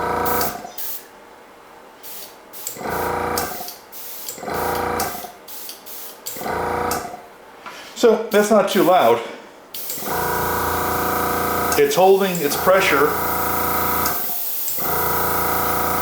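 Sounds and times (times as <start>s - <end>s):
compressor motor running: 0.0s - 1.0s, 2.6s - 5.7s, 6.3s - 7.2s, 9.8s - 16.0s
air hissing from airbrush: 0.3s - 1.0s, 2.0s - 2.8s, 3.5s - 4.4s, 5.1s - 6.2s, 14.0s - 14.8s.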